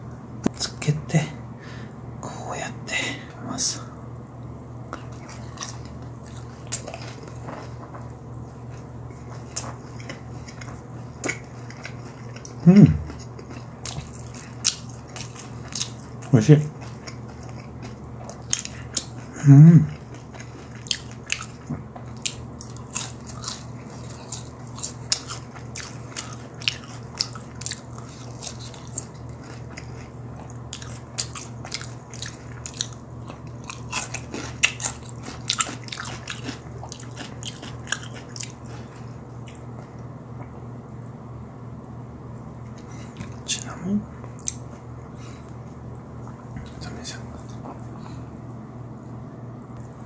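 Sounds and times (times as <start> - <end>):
low steady hum: 0.0 - 50.0
crunchy chewing: 4.9 - 40.6
person humming mm: 12.6 - 13.1, 19.4 - 20.0.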